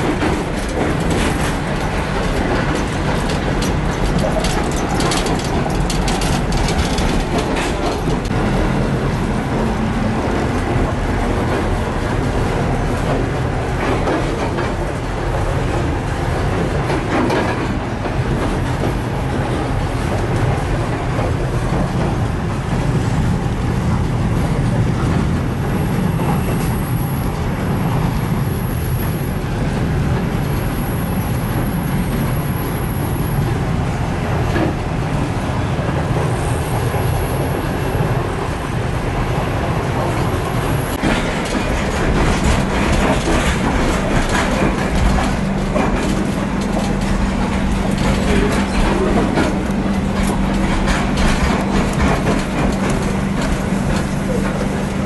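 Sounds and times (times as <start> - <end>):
wheels clicking over rail joints: 0.0 - 26.8, 40.7 - 55.0
train wheels rumbling on rail: 0.0 - 55.0.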